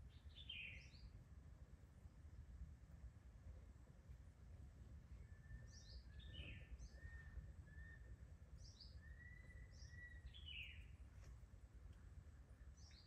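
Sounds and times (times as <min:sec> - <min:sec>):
low steady rumble: 0:00.0 - 0:13.0
short whistled bird notes: 0:08.9 - 0:10.9.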